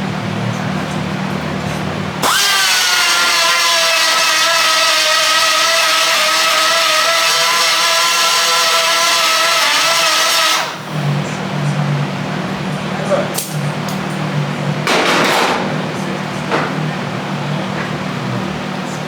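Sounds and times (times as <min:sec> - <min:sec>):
angle grinder grinding metal: 0:02.2 - 0:11.0.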